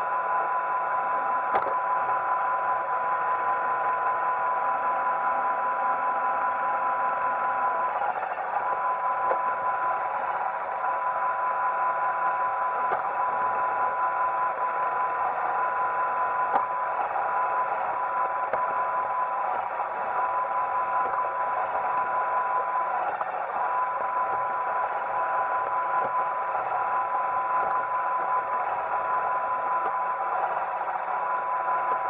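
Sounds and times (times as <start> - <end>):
sharp clicks: 1.5 - 1.8
robot vacuum whirring: 3.3 - 32.0.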